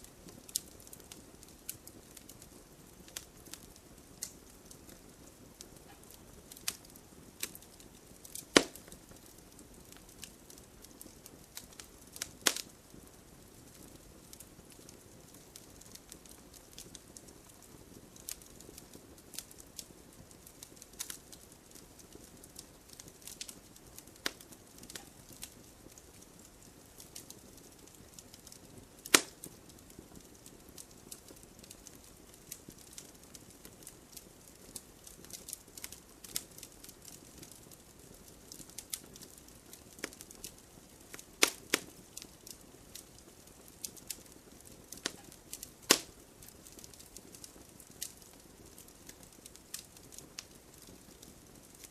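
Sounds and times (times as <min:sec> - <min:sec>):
fire crackling: 0:00.0 - 0:51.9
wood pops and snaps: 0:29.1 - 0:29.4, 0:41.4 - 0:41.8, 0:45.9 - 0:46.1.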